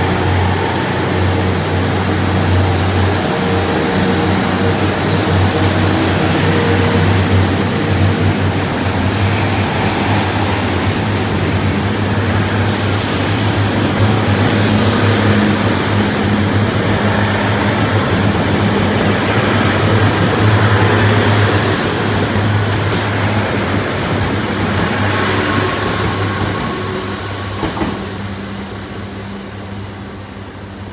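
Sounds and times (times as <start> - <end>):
train engine drone: 0.0 - 30.9
wheels rumbling on rail: 0.0 - 30.9.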